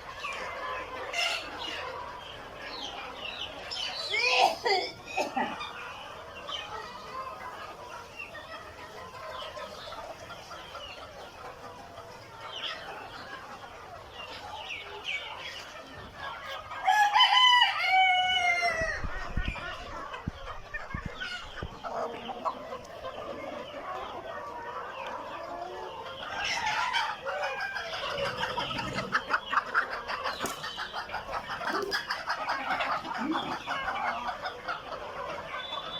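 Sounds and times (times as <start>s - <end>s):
chickens clucking: 0.0s - 35.9s
rooster crowing: 16.8s - 19.0s.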